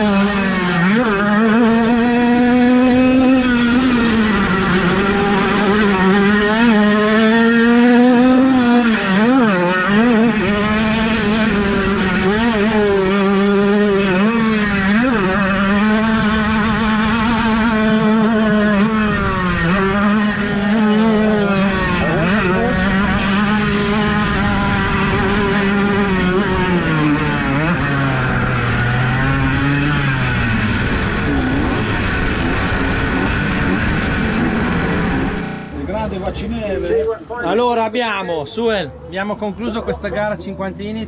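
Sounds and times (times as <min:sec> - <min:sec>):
motorcycle engine revving: 0:00.0 - 0:37.6.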